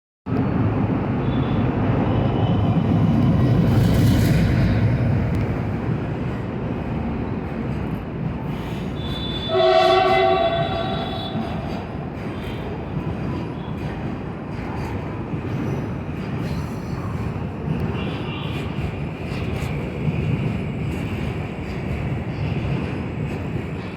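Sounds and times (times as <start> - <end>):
metro train rumbling: 0.3 - 23.9
train horn: 9.0 - 11.9.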